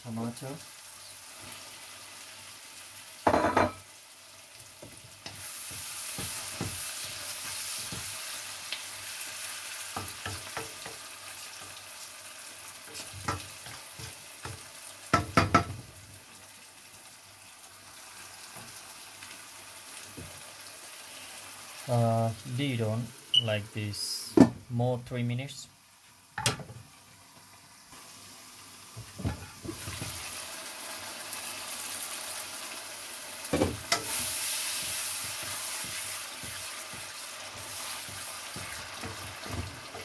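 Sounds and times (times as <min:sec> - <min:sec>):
onions sizzling in wok: 0:00.0 - 0:24.4, 0:25.6 - 0:40.0
wooden spoon scraping wok: 0:12.8 - 0:14.6, 0:33.7 - 0:40.0.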